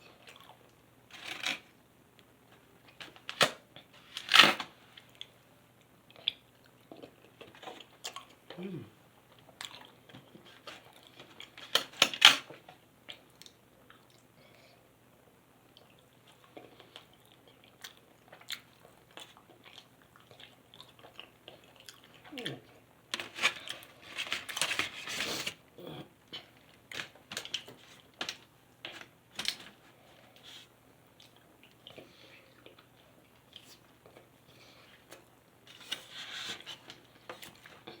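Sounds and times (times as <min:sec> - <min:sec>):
person chewing food: 0:00.1 - 0:00.7, 0:06.1 - 0:11.6, 0:15.7 - 0:22.3.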